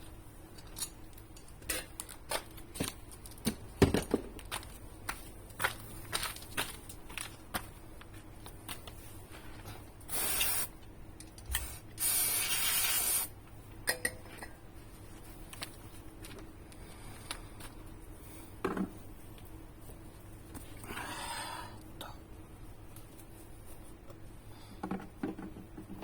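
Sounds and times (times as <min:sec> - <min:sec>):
aerosol spray can hissing: 0:10.1 - 0:10.7, 0:11.6 - 0:13.3.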